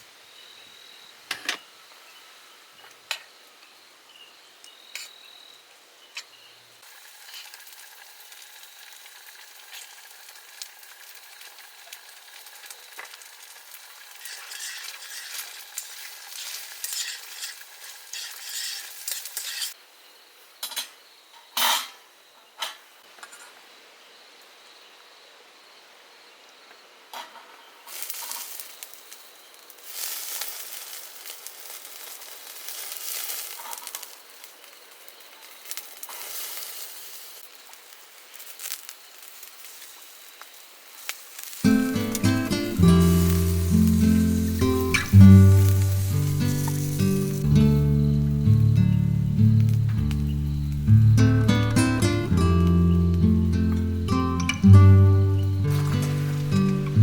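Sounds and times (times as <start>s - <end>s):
food sizzling in a pan: 6.8s - 19.8s, 27.8s - 57.0s
utensil stirring and clinking on pan: 14.0s - 19.8s.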